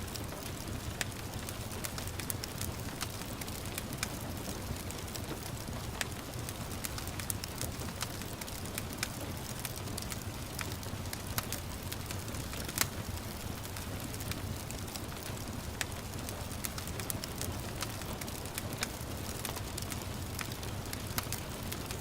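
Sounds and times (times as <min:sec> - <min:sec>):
gentle rain: 0:00.0 - 0:22.0
wood fire crackling: 0:00.0 - 0:22.0.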